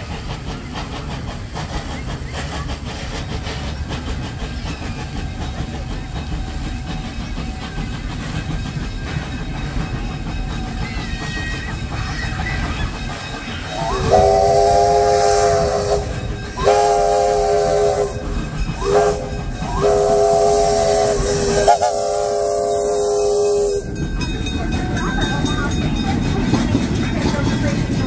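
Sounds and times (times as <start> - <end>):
steam engine running and hissing: 0.0 - 28.0
steam locomotive whistle blasts: 13.7 - 24.0.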